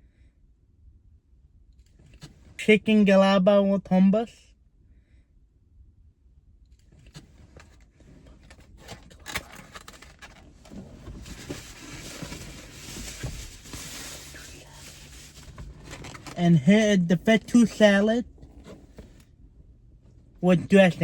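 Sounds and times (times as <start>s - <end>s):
food containers rustling and clicking: 7.0s - 16.4s.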